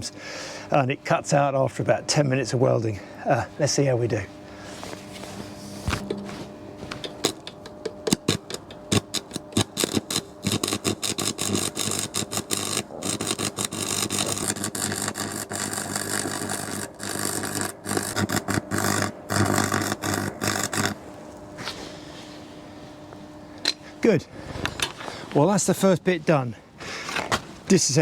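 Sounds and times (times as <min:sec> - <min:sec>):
electrical hum: 0:00.0 - 0:28.0
welding arc crackling: 0:06.0 - 0:21.6.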